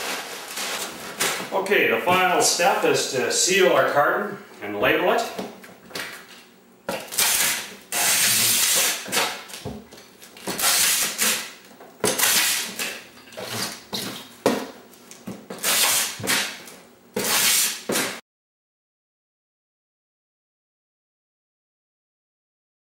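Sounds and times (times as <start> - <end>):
packing tape tearing off roll: 0.0 - 1.5, 6.0 - 14.3, 15.0 - 18.2.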